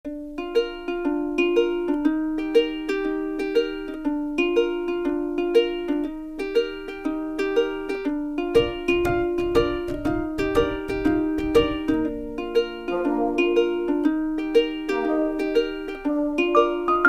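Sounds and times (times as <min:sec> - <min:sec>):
plucked string melody: 0:00.1 - 0:17.0
low thumping beat: 0:08.4 - 0:14.1.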